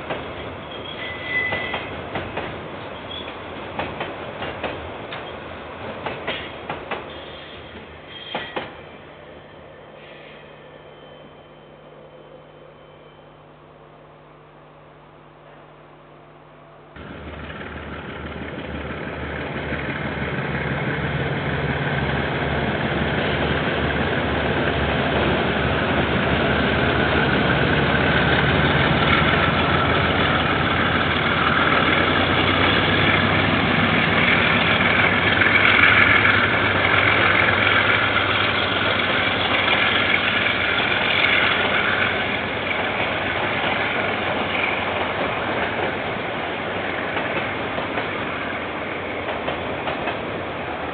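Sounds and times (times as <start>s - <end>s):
diesel locomotive engine throbbing: 17.0s - 50.9s.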